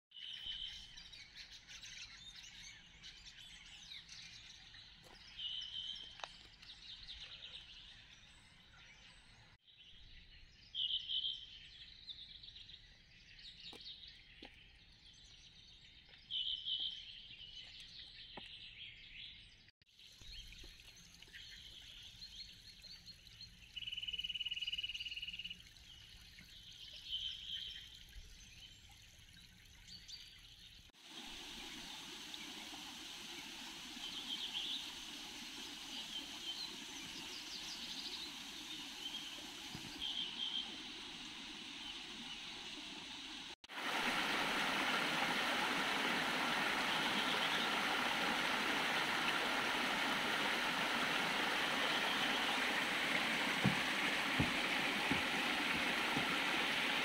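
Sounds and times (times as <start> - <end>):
birds singing and calling: 33.4 - 43.4.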